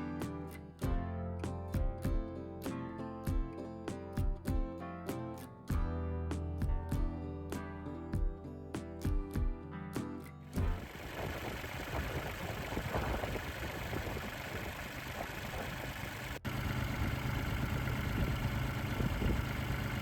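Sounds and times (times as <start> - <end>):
diesel engine running steadily: 10.6 - 20.0.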